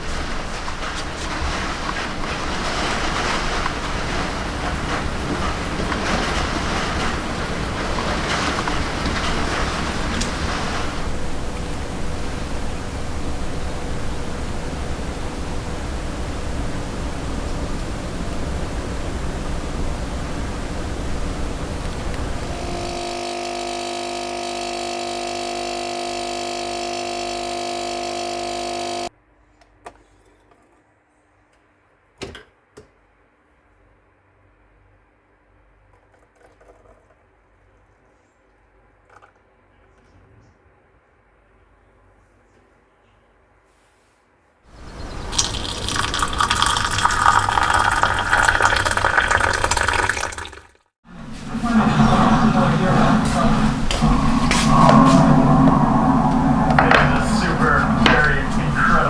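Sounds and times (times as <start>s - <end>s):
small electric motor humming: 21.8s - 29.1s
water pouring into container: 44.8s - 59.0s.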